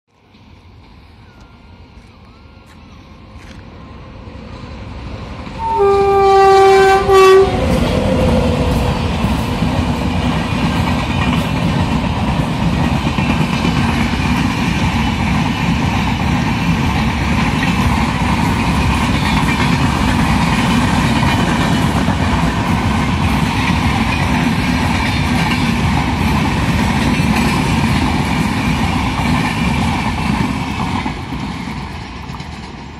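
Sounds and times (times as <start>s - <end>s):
train coaches rumbling past: 0.1s - 32.9s
train horn blast: 5.6s - 9.0s
wheels clattering on rails: 7.5s - 32.9s.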